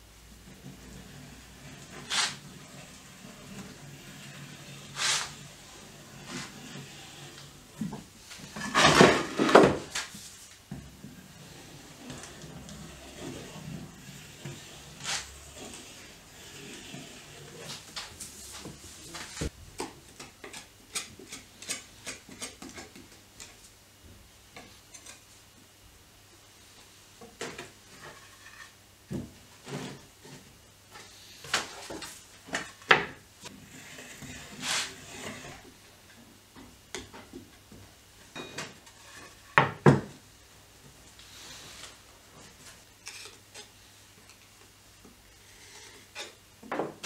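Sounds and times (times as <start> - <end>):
wooden strips knocking and clattering: 7.8 - 10.1.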